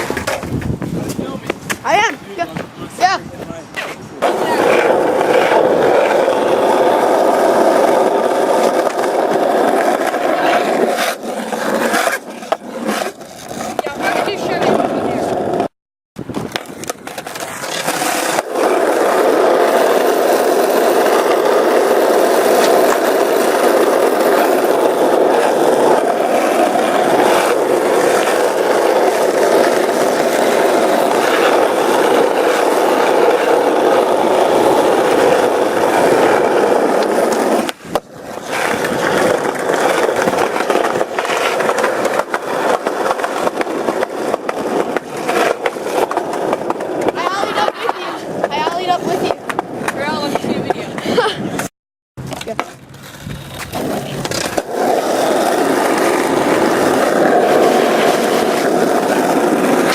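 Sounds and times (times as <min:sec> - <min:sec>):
skateboard wheels on rough pavement: 0:00.0 - 0:59.9
skateboard clicks over cracks: 0:16.3 - 0:50.5, 0:52.2 - 0:59.9.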